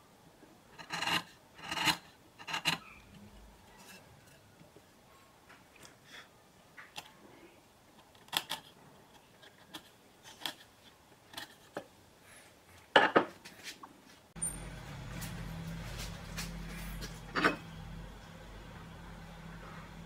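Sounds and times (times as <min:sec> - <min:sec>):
steady low hum: 0:14.4 - 0:20.0.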